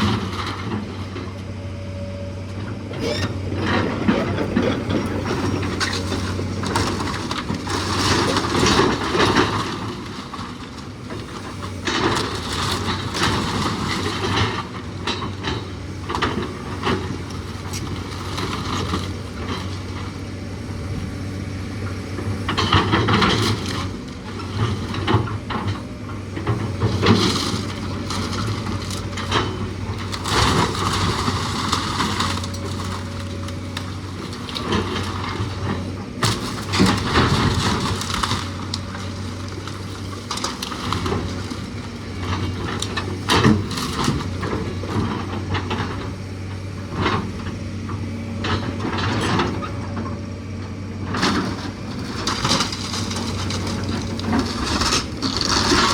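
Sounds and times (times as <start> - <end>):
wood cracking and splintering: 3.0 - 49.7, 51.2 - 55.9.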